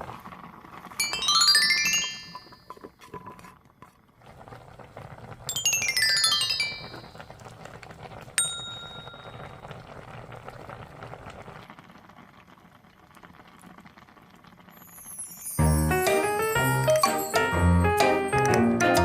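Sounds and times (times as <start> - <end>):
pot simmering bubbling: 0.0 - 19.0
bright ding: 8.4 - 9.5
background music: 15.6 - 19.0.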